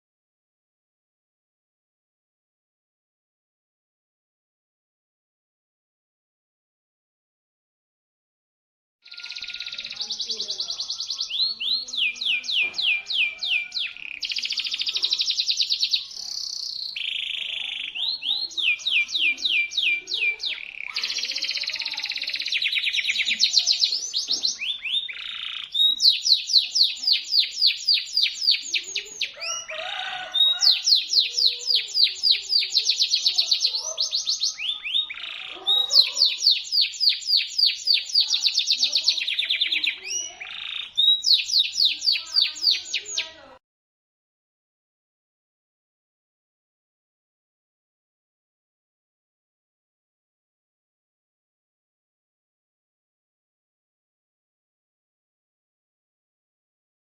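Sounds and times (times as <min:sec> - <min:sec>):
canary singing trills: 0:09.0 - 0:43.6.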